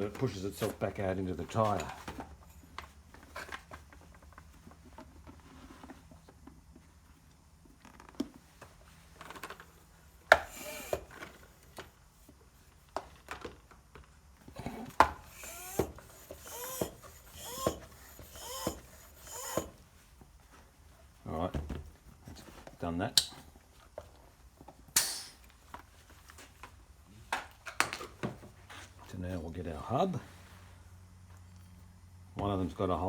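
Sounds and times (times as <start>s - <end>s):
compressed air hissing bursts: 10.4s - 11.1s, 15.2s - 19.7s, 25.0s - 25.5s.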